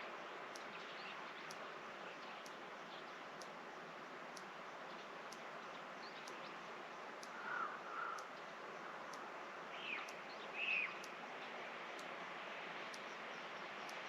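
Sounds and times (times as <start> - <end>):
steady outdoor hiss: 0.0 - 14.0
birds calling: 7.3 - 8.3.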